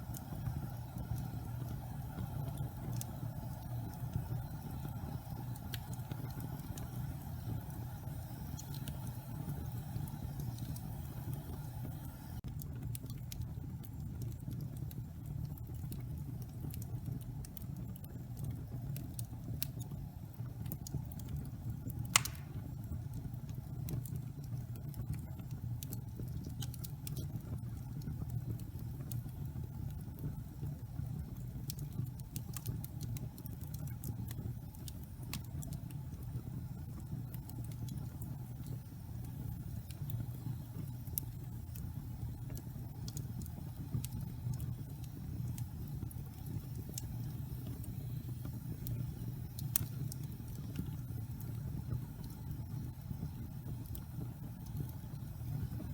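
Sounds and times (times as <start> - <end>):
crackles of burning logs: 0.0 - 55.9
low roar of flames: 0.0 - 55.9
loud pop from fire: 22.1 - 22.7.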